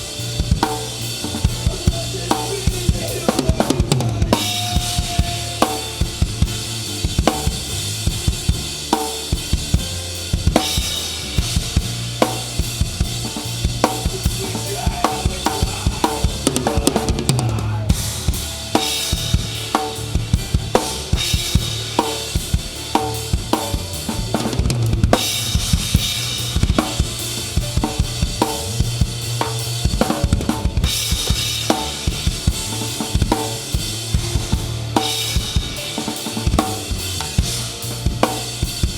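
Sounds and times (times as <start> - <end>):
drum kit fast beat: 0.0 - 38.9
rock band playing: 0.0 - 38.9.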